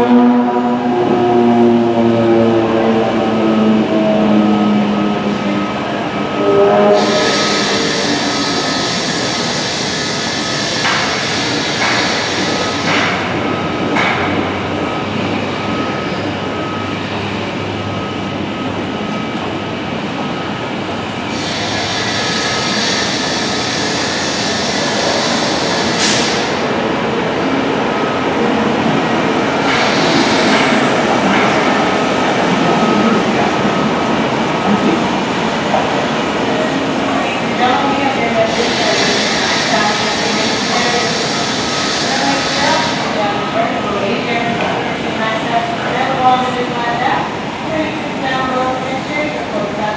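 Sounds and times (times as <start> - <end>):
train rumbling and rattling: 0.0 - 49.9.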